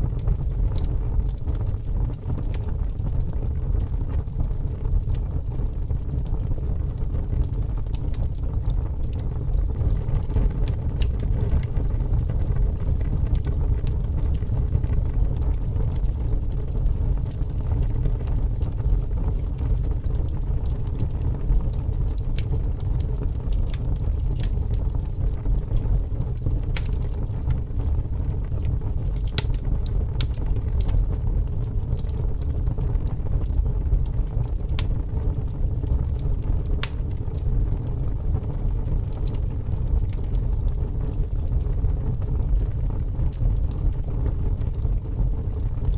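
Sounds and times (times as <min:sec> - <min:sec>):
fire crackling and popping: 0:00.0 - 0:45.9
fire roaring: 0:00.0 - 0:45.9.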